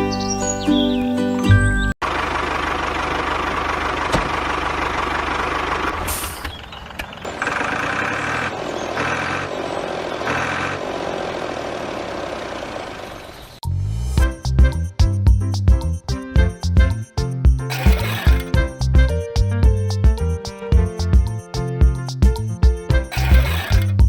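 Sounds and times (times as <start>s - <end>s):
model machinery rattling: 17.7s - 18.6s, 23.1s - 24.0s.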